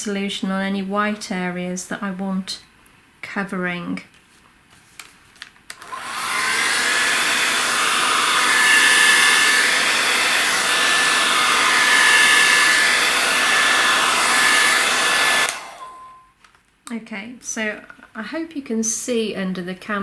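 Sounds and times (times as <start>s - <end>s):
air dryer blowing with whine: 5.8s - 16.2s.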